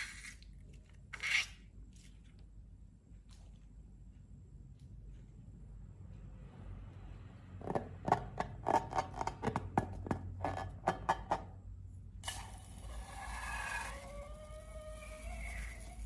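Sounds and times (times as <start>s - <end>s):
hiss with squeaky tones: 12.8s - 16.0s.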